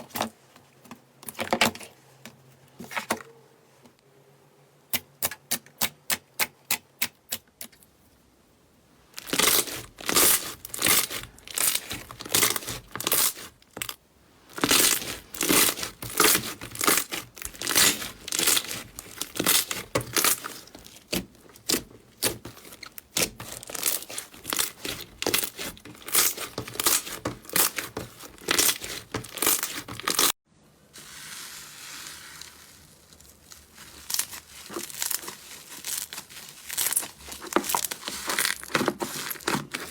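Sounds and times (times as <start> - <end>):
slime crackling and popping: 9.2 - 13.9, 14.5 - 30.3, 31.4 - 38.8
slime squishing: 9.2 - 30.4, 31.0 - 39.9.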